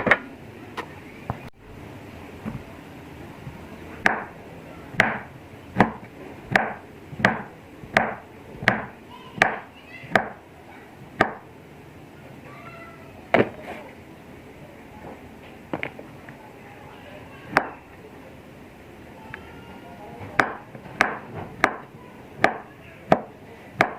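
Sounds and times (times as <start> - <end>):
knife chopping on cutting board: 5.8 - 10.4.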